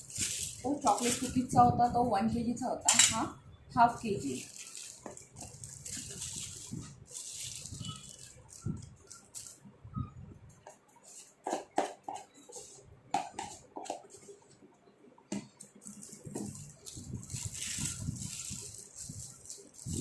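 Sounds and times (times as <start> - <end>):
metal kitchen utensils clinking: 2.8 - 3.3.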